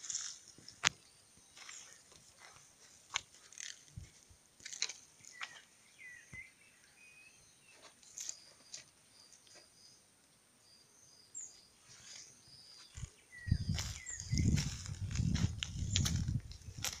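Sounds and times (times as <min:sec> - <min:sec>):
birds chirping and whistling: 0:05.2 - 0:08.8, 0:10.7 - 0:17.0
low rumbling: 0:13.4 - 0:17.0.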